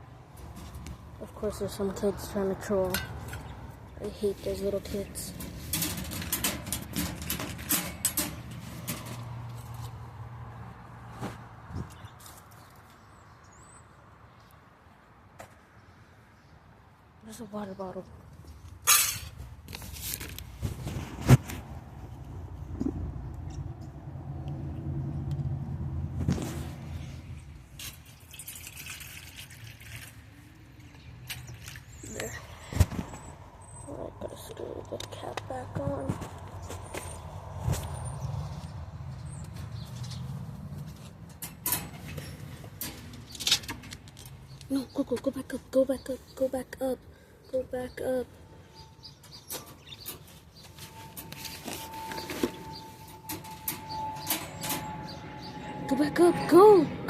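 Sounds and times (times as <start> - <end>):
handling clicks and rustles: 4.3 - 10.0, 39.4 - 45.3, 49.2 - 55.1
water pouring into bottle: 27.9 - 30.3.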